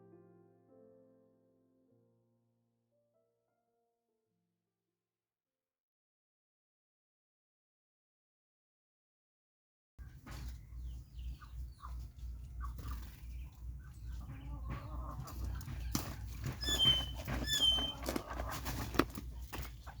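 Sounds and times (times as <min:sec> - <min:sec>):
chickens clucking: 0:10.0 - 0:20.0
chicken squawks: 0:10.8 - 0:20.0.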